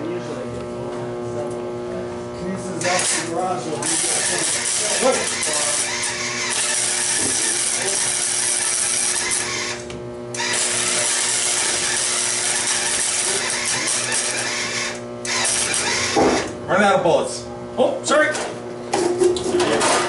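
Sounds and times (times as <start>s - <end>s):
low electrical hum: 0.0s - 20.0s
arc welder crackling hiss: 2.8s - 16.4s.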